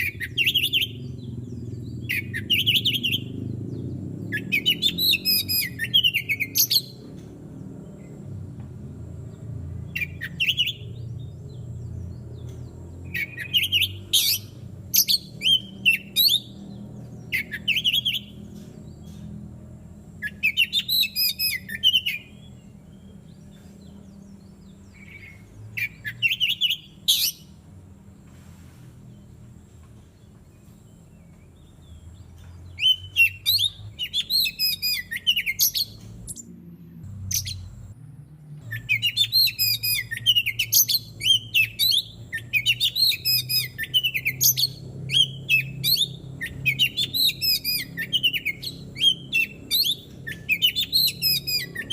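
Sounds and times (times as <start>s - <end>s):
bird singing whistled phrases: 0.0s - 1.1s, 2.0s - 3.4s, 4.3s - 7.0s, 10.0s - 11.0s, 13.1s - 16.6s, 17.3s - 18.4s, 20.2s - 22.5s, 25.0s - 27.5s, 32.7s - 36.4s, 38.7s - 51.9s.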